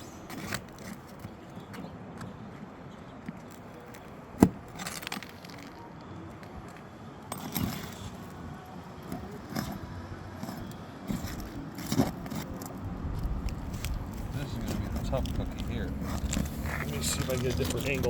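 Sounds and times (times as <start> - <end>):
metal tool scraping and clinking: 7.3 - 8.2.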